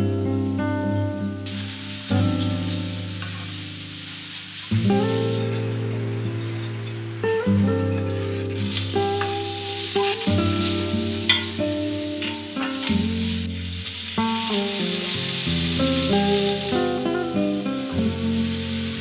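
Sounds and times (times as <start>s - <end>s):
soft background music: 0.0s - 19.0s
food sizzling in a pan: 0.6s - 19.0s
stirring clicks: 1.5s - 5.4s, 6.3s - 15.0s.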